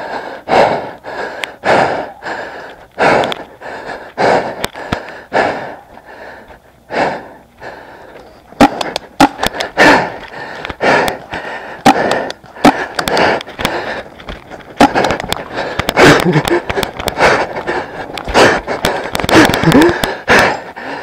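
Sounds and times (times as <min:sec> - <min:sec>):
heavy rapid breathing: 0:00.0 - 0:21.0
sharp loud pops: 0:08.6 - 0:09.6.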